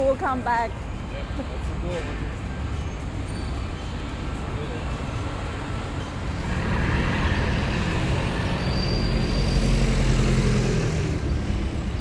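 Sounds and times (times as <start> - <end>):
road traffic: 0.0 - 12.0
large vehicle engine passing: 6.2 - 12.0.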